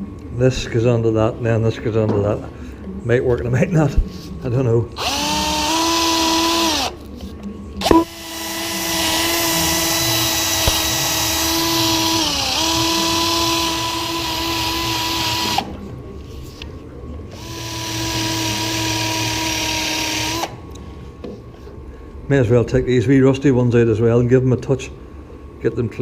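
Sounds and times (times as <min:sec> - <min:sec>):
electric drill whining: 0:05.0 - 0:07.0, 0:07.8 - 0:15.7, 0:17.4 - 0:20.6.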